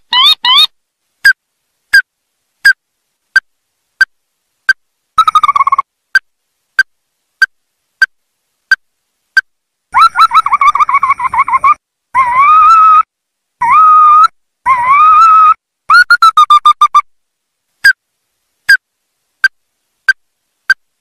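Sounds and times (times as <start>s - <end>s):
bird calling sharp notes: 0.0s - 0.7s, 5.2s - 5.8s, 14.9s - 17.0s.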